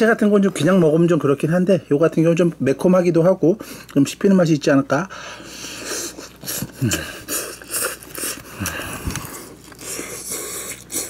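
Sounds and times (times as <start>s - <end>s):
person chewing food: 5.7s - 11.0s.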